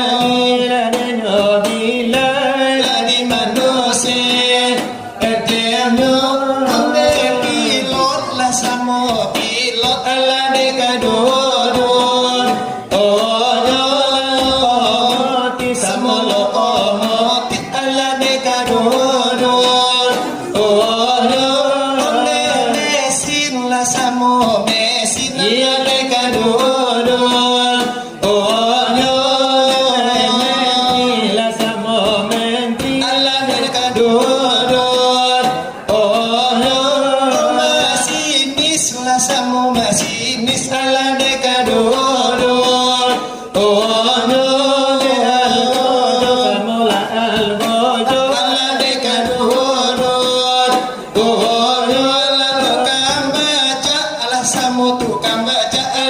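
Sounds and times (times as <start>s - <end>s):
men chanting devotional verses: 0.0s - 56.0s.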